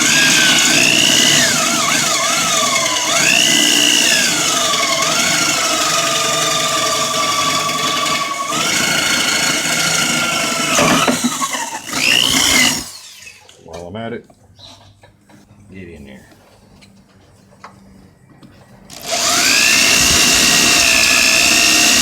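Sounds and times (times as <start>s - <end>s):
electric drill boring into wood: 0.0s - 13.6s, 18.9s - 22.0s.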